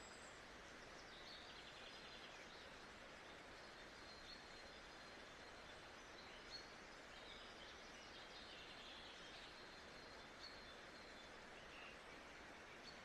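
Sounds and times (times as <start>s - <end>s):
faint nature ambience hiss: 0.0s - 13.0s.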